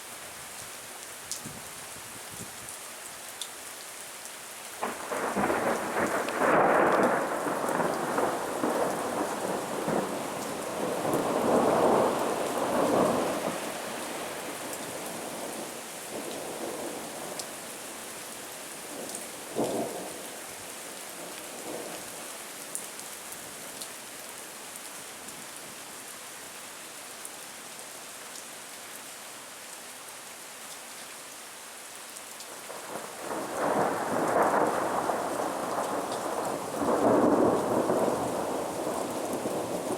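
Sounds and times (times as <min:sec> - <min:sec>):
rain hissing: 0:04.8 - 0:23.0, 0:32.5 - 0:39.9.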